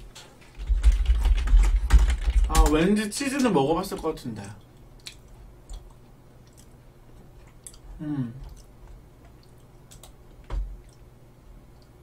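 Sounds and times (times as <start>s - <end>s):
quiet chewing of crunchy stick: 5.0s - 10.2s
person humming: 8.0s - 8.5s.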